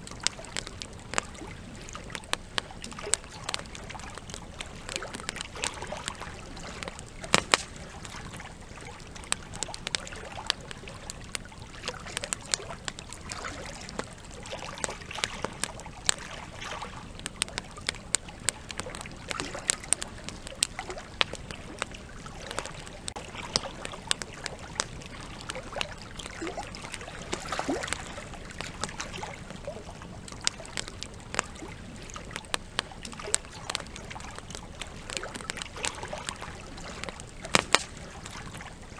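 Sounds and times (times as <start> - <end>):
campfire crackling and popping: 0.0 - 38.9
river flowing: 2.9 - 15.3.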